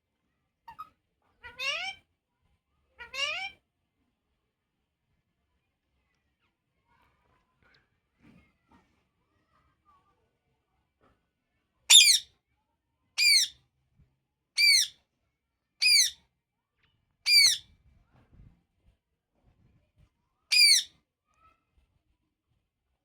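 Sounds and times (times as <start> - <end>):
parrot squawking: 0.7 - 2.0, 3.0 - 3.6, 11.9 - 12.2, 13.2 - 13.5, 14.6 - 14.9, 15.8 - 16.2, 17.3 - 17.6, 20.5 - 20.9.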